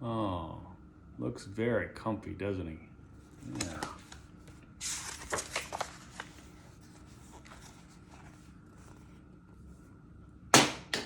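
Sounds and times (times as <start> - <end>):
paper rustling: 3.3 - 9.2.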